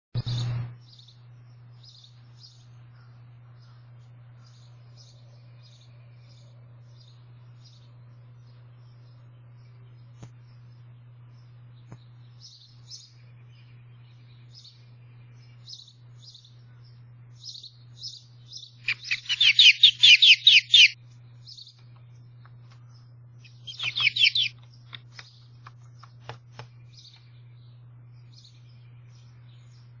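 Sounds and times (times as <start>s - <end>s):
small bird chirping: 0.2s - 30.0s
bird trilling: 15.6s - 21.7s, 22.8s - 24.6s.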